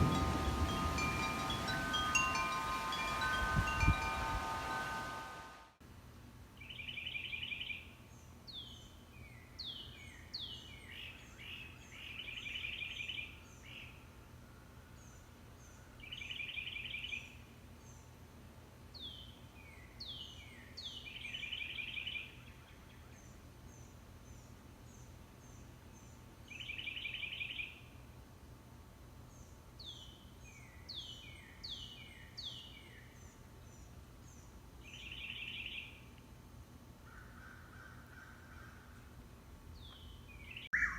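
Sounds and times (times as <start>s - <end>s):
birds singing trills and whistles: 6.6s - 14.0s, 15.0s - 18.1s, 19.0s - 27.9s, 29.3s - 36.1s, 39.8s - 40.9s
faint high chirps: 40.6s - 40.9s.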